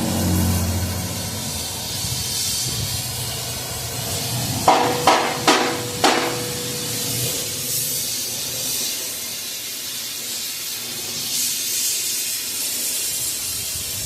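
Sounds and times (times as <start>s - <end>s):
torch flame hissing: 0.0s - 14.0s
hammer blows on metal: 4.6s - 8.0s.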